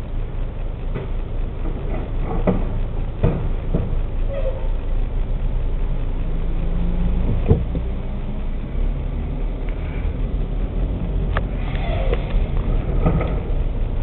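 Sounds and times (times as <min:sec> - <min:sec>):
truck diesel engine running: 0:00.0 - 0:14.0
click: 0:11.3 - 0:13.4.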